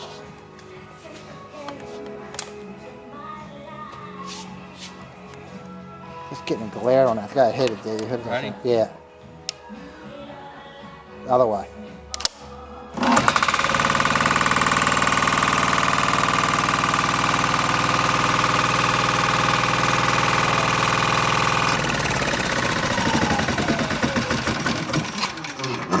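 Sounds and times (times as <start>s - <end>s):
diesel engine running: 13.0s - 26.0s.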